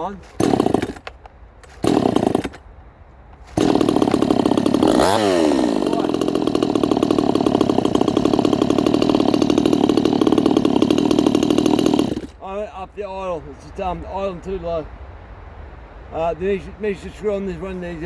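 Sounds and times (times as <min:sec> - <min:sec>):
chainsaw running: 0:00.3 - 0:02.6, 0:03.4 - 0:12.4.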